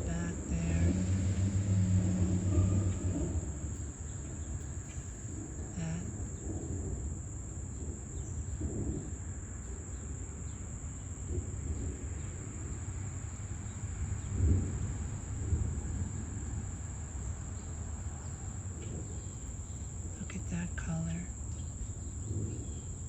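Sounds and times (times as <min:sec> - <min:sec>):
low rumble: 0:00.0 - 0:07.3
insect chorus trilling: 0:00.0 - 0:23.0.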